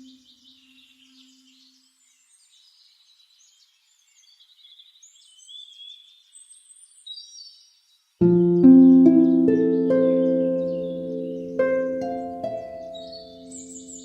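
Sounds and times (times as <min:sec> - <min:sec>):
small birds chirping: 0:00.0 - 0:14.0
harp plucked chord: 0:08.2 - 0:14.0.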